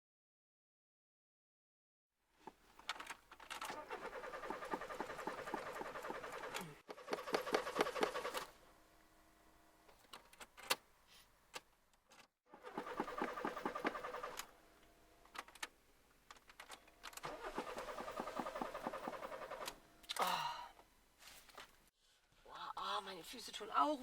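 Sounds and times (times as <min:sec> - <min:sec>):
car engine cranking: 0:03.5 - 0:08.5, 0:17.1 - 0:19.8.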